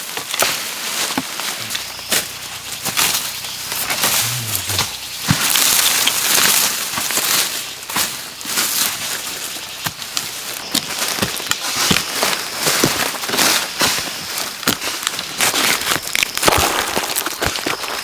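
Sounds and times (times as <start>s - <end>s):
rustling hiss: 1.4s - 10.6s.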